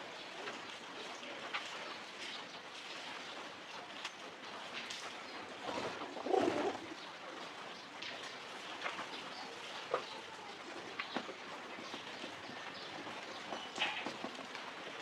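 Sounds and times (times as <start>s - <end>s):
pigeon cooing: 5.8s - 7.0s.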